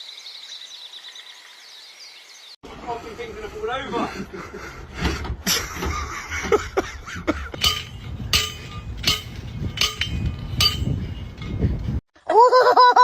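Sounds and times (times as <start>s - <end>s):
steady low rumble: 6.9s - 12.0s
sharp metallic strikes ringing: 7.6s - 11.6s.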